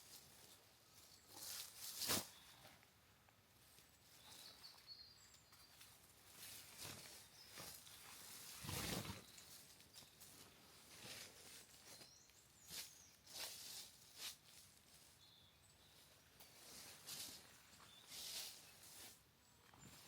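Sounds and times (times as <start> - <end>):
faint high chirp: 4.0 - 10.5, 11.5 - 13.8, 15.0 - 20.0
soft rustling: 5.7 - 15.3, 15.9 - 20.0.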